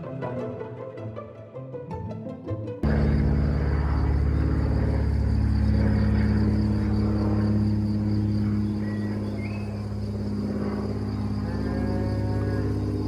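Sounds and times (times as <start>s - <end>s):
machine droning: 2.8s - 13.0s
bird chirping: 3.7s - 13.0s.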